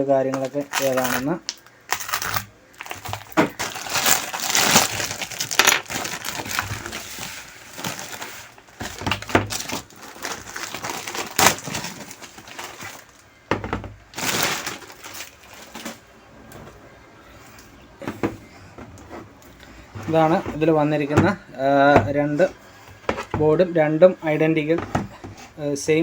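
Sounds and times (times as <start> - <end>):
packaging crinkling and tearing: 0.3 - 13.3, 14.1 - 16.0.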